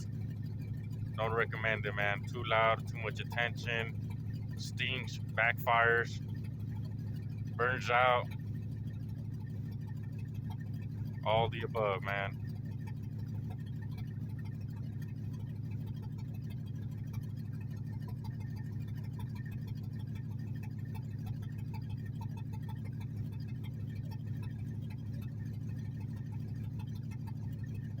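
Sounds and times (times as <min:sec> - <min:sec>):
car engine idling loudly: 0:00.0 - 0:28.0.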